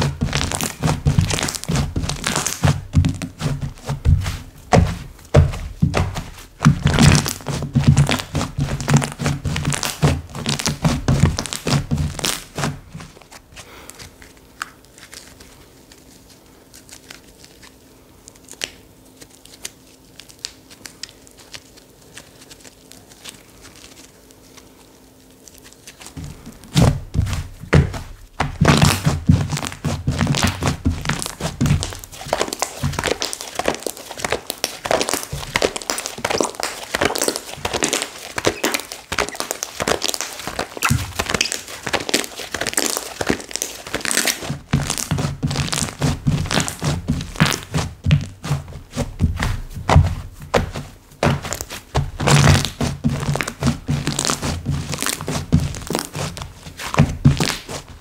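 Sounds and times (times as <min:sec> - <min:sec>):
slime squished by hand: 0:00.0 - 0:13.2, 0:25.0 - 0:57.9.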